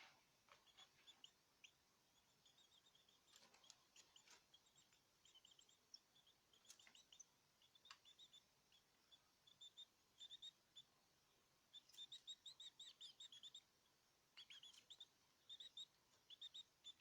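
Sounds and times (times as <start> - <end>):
caged songbirds chirping: 0.0 - 17.0
faint sharp clicks: 7.8 - 8.2.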